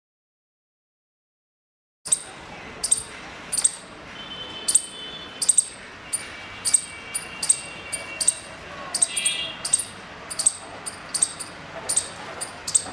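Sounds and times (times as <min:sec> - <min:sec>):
squirrel chirping call: 0:02.1 - 0:04.0, 0:04.6 - 0:12.9.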